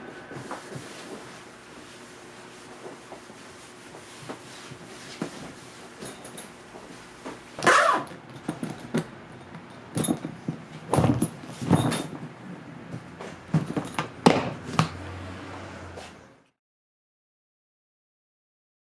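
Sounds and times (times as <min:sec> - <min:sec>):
zipper rasping: 0:07.6 - 0:08.2
suitcase being handled: 0:07.6 - 0:12.3, 0:13.2 - 0:14.8.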